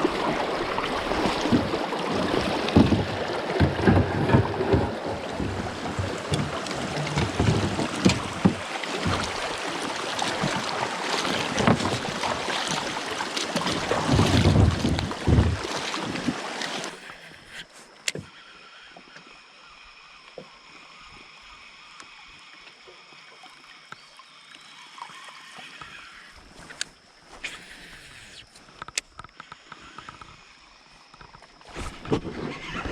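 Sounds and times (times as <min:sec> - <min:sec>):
water noise around kayak: 0:00.0 - 0:32.9
faint clicks: 0:23.8 - 0:30.4.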